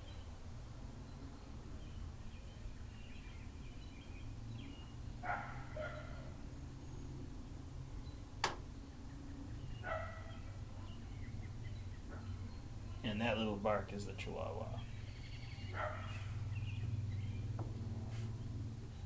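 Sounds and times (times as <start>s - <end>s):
small dog barking: 5.2s - 6.3s, 9.8s - 10.9s, 15.7s - 16.4s
sharp click: 8.4s - 8.7s.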